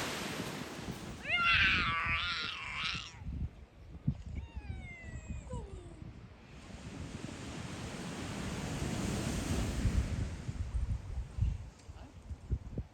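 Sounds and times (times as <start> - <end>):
cat meowing: 1.2 - 3.2.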